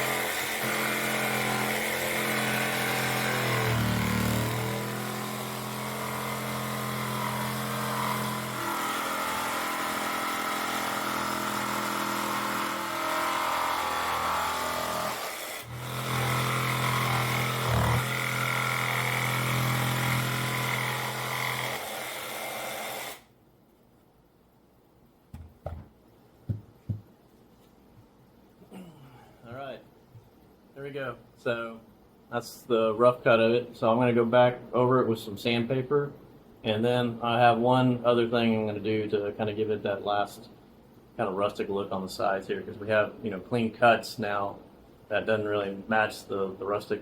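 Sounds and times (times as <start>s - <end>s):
electric power saw cutting wood: 0.0s - 23.3s.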